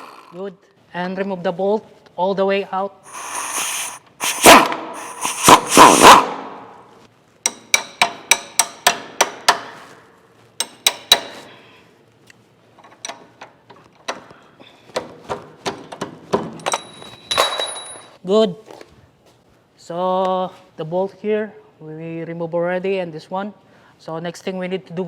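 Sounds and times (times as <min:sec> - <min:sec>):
hammer blows on steel: 0:03.1 - 0:06.7.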